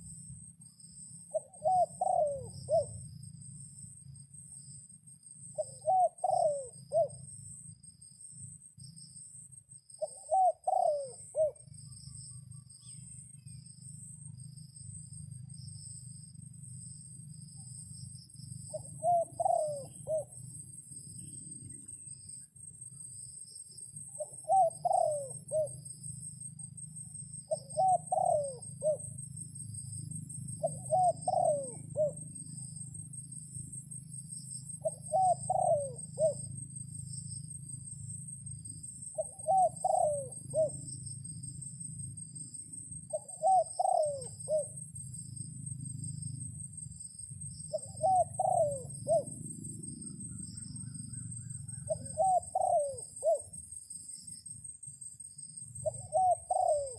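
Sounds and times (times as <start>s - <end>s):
steady low hum: 0.0s - 56.9s
dove cooing: 1.3s - 3.1s, 5.6s - 7.3s, 10.0s - 11.7s, 18.7s - 20.4s, 24.2s - 25.8s, 27.5s - 29.1s, 30.6s - 32.6s, 34.8s - 36.5s, 39.1s - 40.9s, 43.1s - 44.8s, 47.6s - 53.5s, 55.8s - 56.9s.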